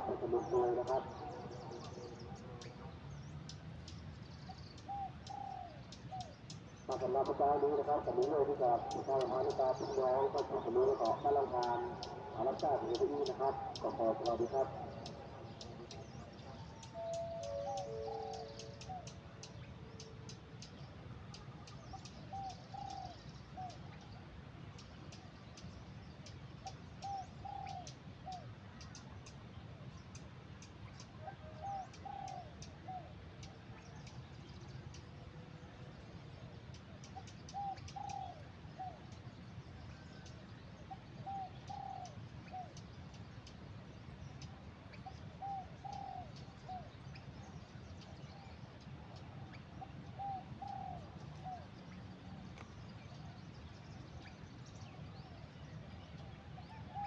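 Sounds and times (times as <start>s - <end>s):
bird cooing: 0.0s - 3.0s, 4.5s - 24.1s, 26.6s - 29.2s, 31.0s - 35.7s, 36.4s - 42.8s, 44.9s - 52.4s, 55.2s - 57.0s
low background noise: 0.0s - 57.0s.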